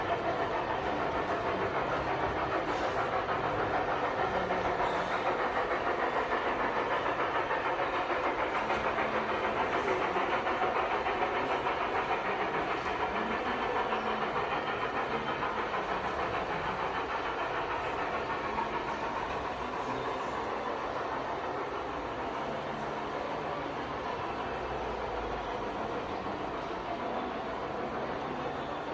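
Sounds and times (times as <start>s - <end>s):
model train wheels rumbling: 0.0s - 28.9s.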